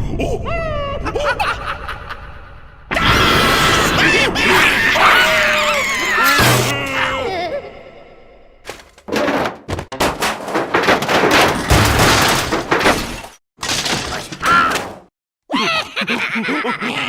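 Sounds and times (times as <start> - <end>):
cartoon crashes and thuds: 6.0 - 6.9, 8.7 - 15.1.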